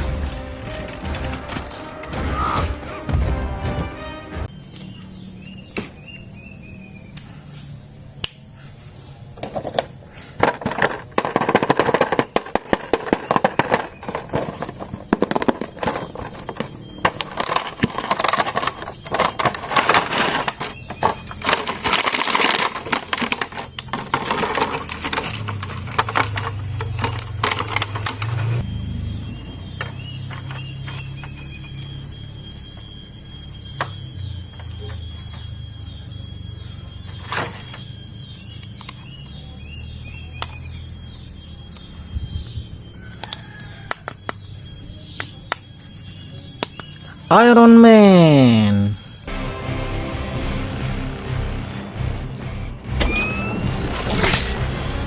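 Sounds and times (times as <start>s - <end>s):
plastic packaging crinkling: 0.0s - 2.1s, 11.2s - 28.2s.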